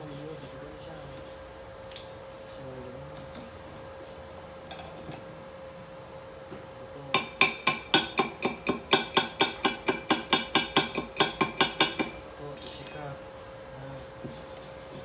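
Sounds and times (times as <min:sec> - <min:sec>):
hammer tapping on steel: 0:07.2 - 0:12.2.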